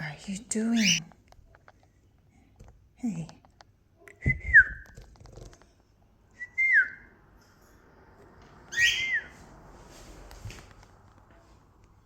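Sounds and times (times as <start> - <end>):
cockatiel whistling: 8.7 - 9.3.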